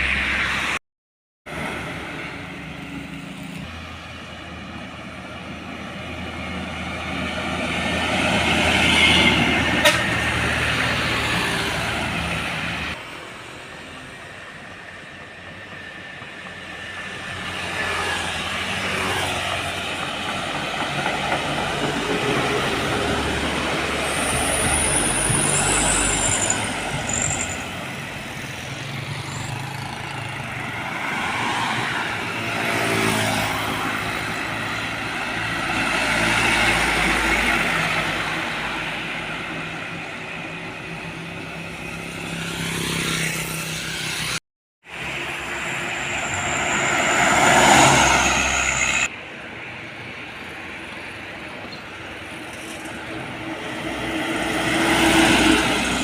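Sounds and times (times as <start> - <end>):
diesel trucks passing: 1.5 - 56.0
high brake squeal: 24.1 - 28.0, 45.4 - 49.1.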